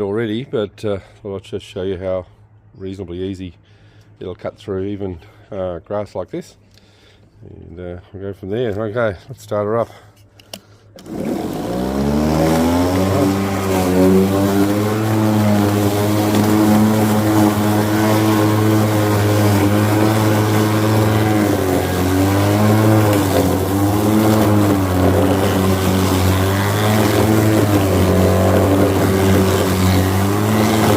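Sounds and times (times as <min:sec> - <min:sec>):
electric lawn mower humming: 0:11.0 - 0:30.9.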